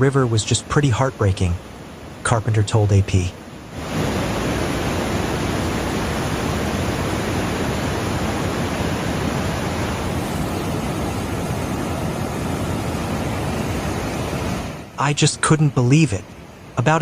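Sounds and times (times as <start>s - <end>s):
floodwater rushing: 3.4s - 15.5s.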